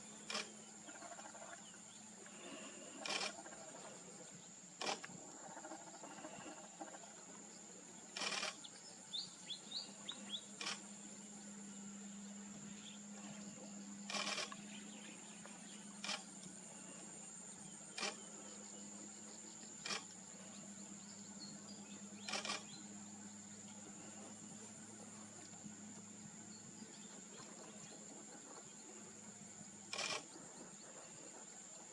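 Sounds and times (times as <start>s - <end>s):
sharp clicks: 10.6s - 10.9s.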